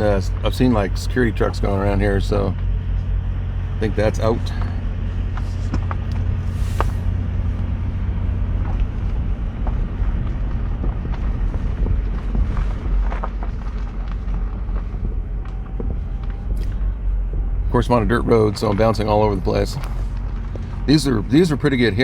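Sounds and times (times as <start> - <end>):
car rumbling on dirt road: 0.0 - 22.0.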